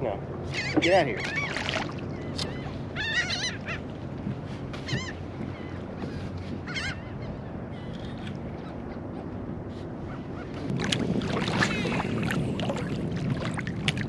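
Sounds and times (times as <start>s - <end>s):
water noise: 0.0s - 5.2s, 10.1s - 14.0s
seabirds calling: 0.0s - 13.9s
wind: 0.0s - 14.0s.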